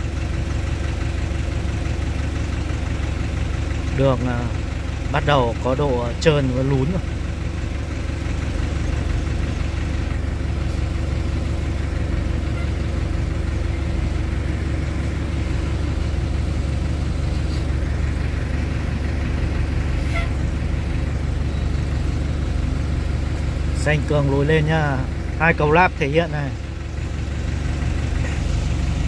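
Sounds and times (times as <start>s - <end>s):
truck engine running: 0.0s - 29.0s.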